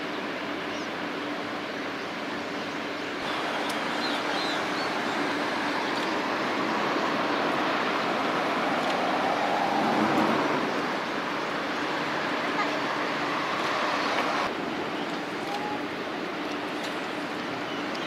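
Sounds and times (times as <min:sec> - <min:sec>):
strong wind on microphone: 0:03.9 - 0:11.3.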